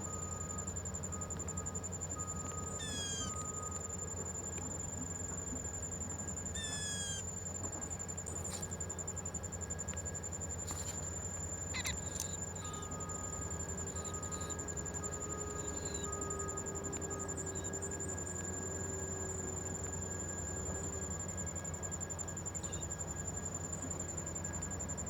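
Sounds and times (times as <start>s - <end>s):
high-pitched insect drone: 0.0s - 25.0s
short bird calls: 2.7s - 3.5s, 6.6s - 7.3s, 11.7s - 13.1s.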